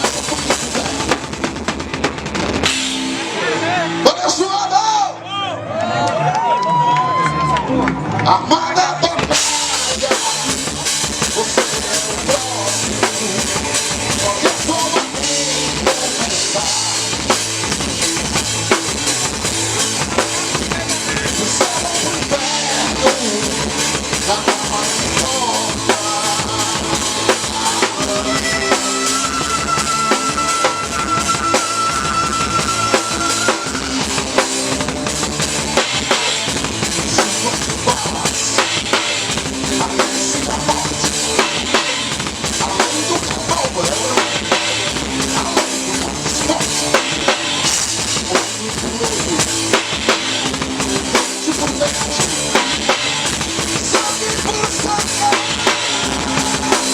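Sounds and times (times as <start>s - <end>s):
metal band playing live: 0.0s - 5.6s, 7.2s - 56.9s
held high note: 28.3s - 34.3s.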